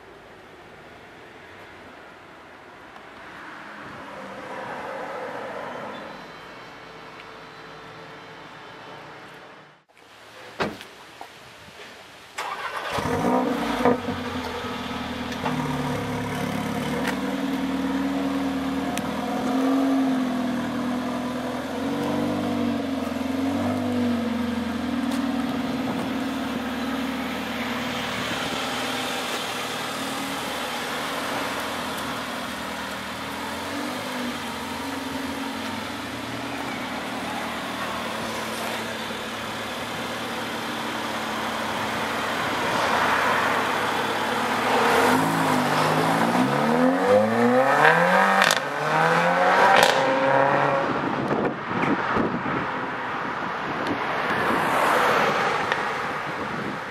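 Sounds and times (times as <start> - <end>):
car engine revving: 12.4 - 51.0.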